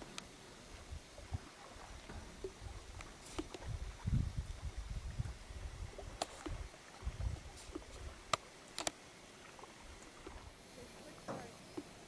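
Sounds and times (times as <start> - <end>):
wind rumbling on microphone: 0.7 - 8.4.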